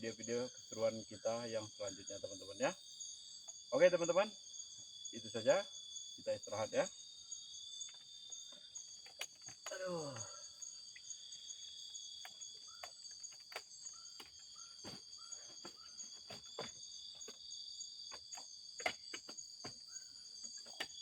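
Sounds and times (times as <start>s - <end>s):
crickets and insects droning: 0.0s - 21.0s.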